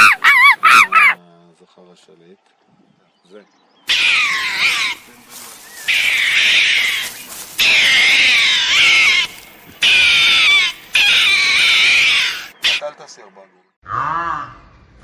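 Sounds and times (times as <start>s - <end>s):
animal harsh wavering cries: 0.0s - 1.2s, 3.9s - 5.0s, 5.8s - 12.8s.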